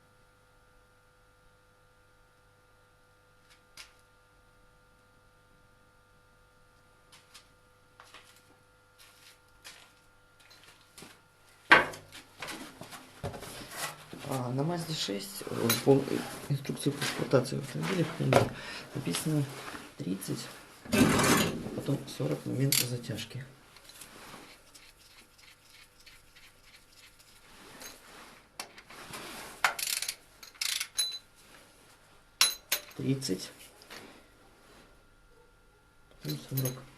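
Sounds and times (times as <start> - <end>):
hand wrench ratcheting: 29.7 - 31.2
tools clattering: 29.7 - 31.3, 32.4 - 33.0, 36.3 - 36.9
wrench click: 29.8 - 31.2.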